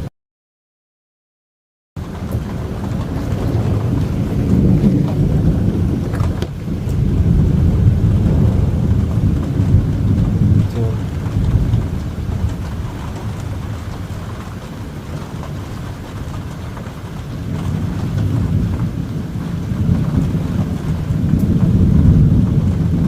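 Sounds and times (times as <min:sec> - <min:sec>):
thunder rumbling: 0:02.0 - 0:23.0.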